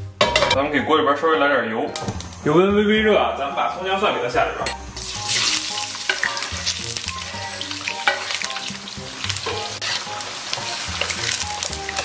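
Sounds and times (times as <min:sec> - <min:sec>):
food sizzling in hot oil: 0:04.8 - 0:12.0.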